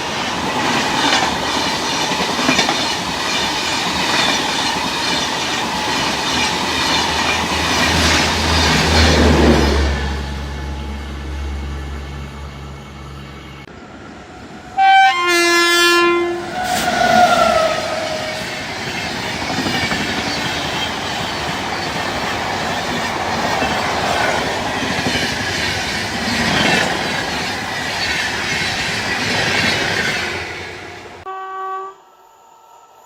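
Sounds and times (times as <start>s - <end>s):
train wheels clattering on rails: 0.0s - 10.0s, 16.8s - 30.7s
train horn: 14.7s - 18.5s, 30.9s - 32.1s.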